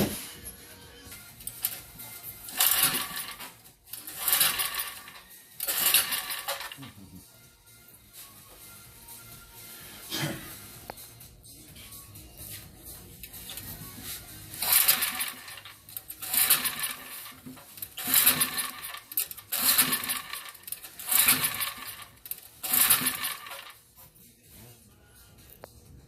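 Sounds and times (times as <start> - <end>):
recoil starter cord pulls: 2.5 - 6.8, 14.5 - 23.8.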